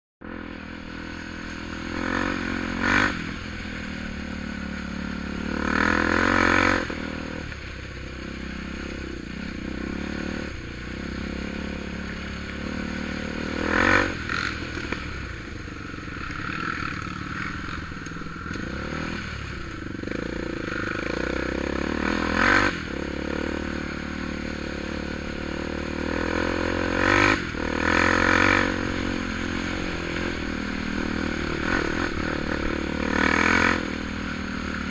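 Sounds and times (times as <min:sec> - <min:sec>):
atv engine revving: 0:00.2 - 0:34.9.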